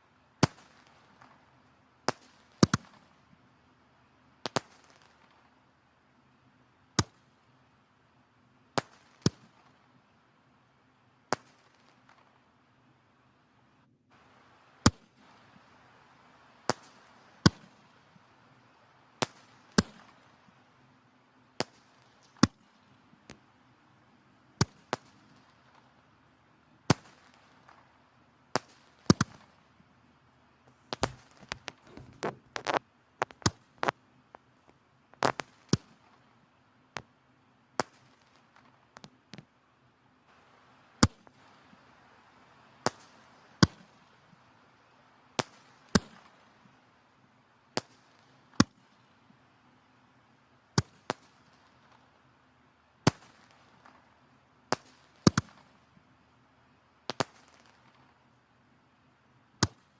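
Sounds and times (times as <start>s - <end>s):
faint fire hiss: 0.0s - 59.9s
firewood crackling in fireplace: 30.6s - 36.4s.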